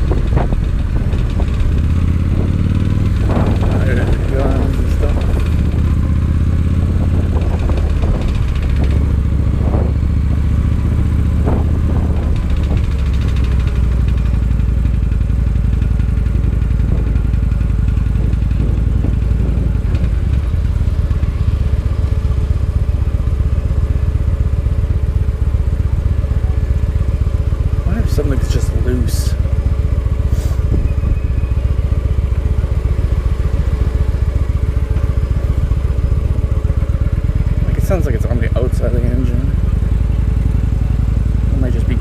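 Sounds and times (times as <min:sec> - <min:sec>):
sharp engine knocks: 0:00.0 - 0:23.6
motorcycle engine running: 0:00.0 - 0:42.0.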